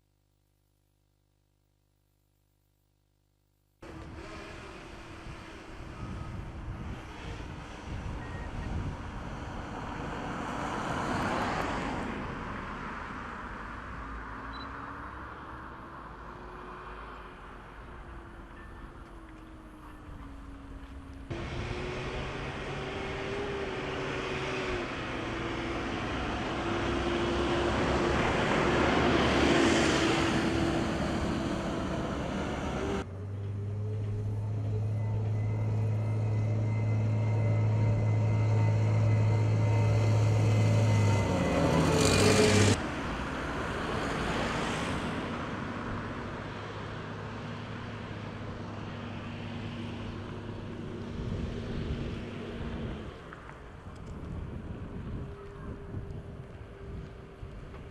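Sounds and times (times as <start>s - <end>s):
outdoor noise: 0.0s - 57.9s
strong low engine tone: 3.8s - 9.6s, 17.0s - 42.8s
vehicle engines running: 3.8s - 10.6s, 13.6s - 43.6s.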